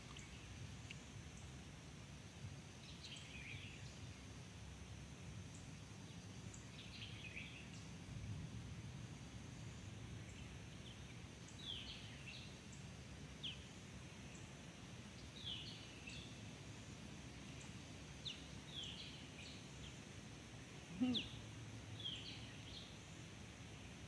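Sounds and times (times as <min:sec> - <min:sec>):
bird chirping: 0:17.4 - 0:20.0, 0:20.9 - 0:23.2.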